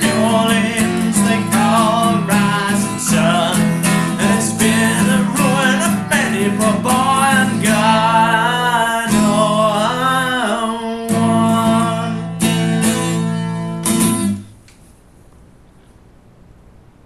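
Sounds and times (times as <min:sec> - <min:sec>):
person singing: 0:00.0 - 0:13.4
acoustic guitar strumming: 0:00.0 - 0:14.6.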